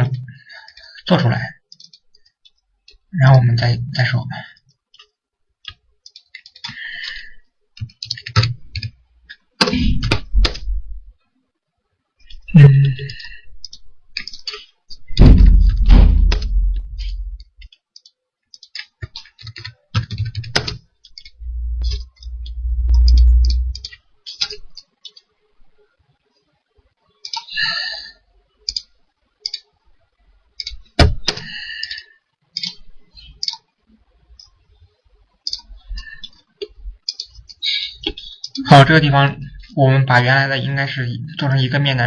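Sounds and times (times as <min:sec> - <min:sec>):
low thumps: 0:15.1 - 0:17.4, 0:21.4 - 0:23.9
mouse and keyboard clicks: 0:16.3 - 0:25.3, 0:27.3 - 0:27.5, 0:29.5 - 0:29.7, 0:32.6 - 0:32.8.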